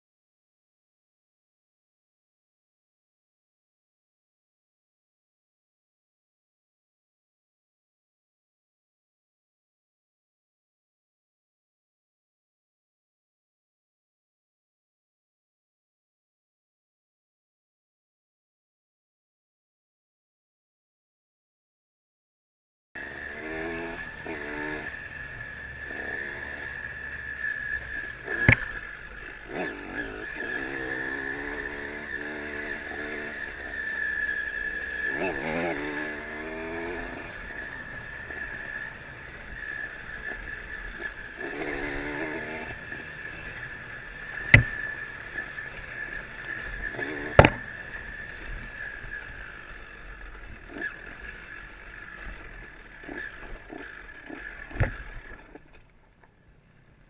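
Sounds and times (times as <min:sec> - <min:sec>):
dirt bike engine revving: 0:23.0 - 0:55.8
sharp knocks: 0:47.4 - 0:47.6.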